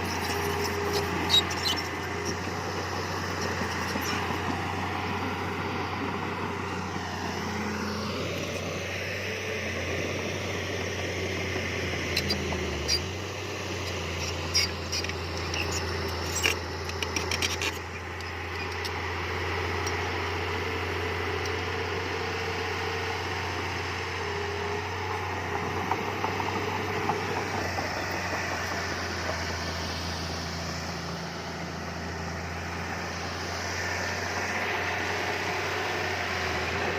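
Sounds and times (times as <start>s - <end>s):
diesel engine running: 0.0s - 36.9s
sharp clicks and knocks: 16.3s - 18.8s.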